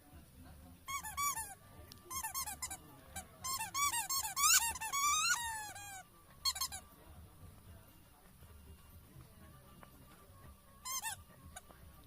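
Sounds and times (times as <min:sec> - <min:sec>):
rubber squeaky ball squeaking: 0:00.9 - 0:02.8, 0:03.4 - 0:06.8, 0:10.8 - 0:11.2.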